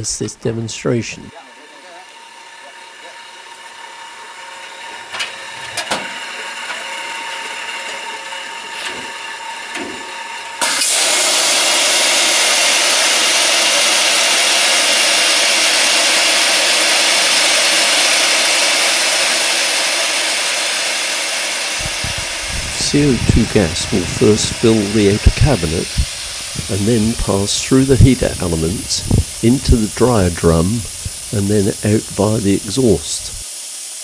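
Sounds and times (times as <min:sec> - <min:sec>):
clothes dryer humming: 0:00.0 - 0:34.0
loud gas hiss: 0:10.6 - 0:34.0.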